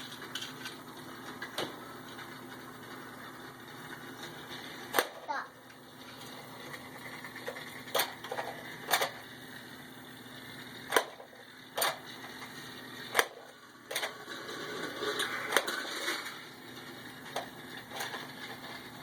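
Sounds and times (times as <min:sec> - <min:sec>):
plastic toy train pieces clacking: 0:13.1 - 0:16.4, 0:17.2 - 0:18.9.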